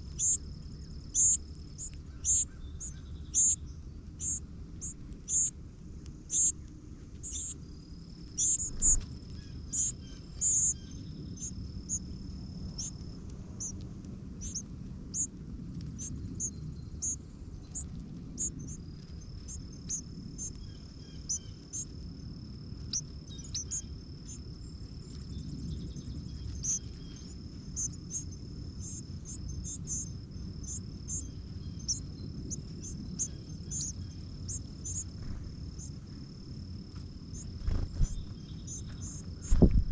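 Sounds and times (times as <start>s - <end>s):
high-pitched insect trill: 0.0s - 5.6s, 6.3s - 6.6s, 7.2s - 13.8s, 14.4s - 15.3s, 15.9s - 39.9s
small birds chirping: 0.0s - 39.9s.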